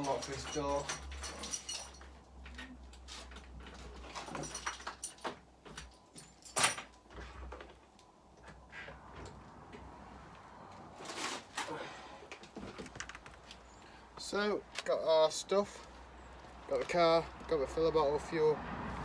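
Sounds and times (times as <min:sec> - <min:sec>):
keys jangling: 0:00.0 - 0:03.3, 0:04.0 - 0:07.0.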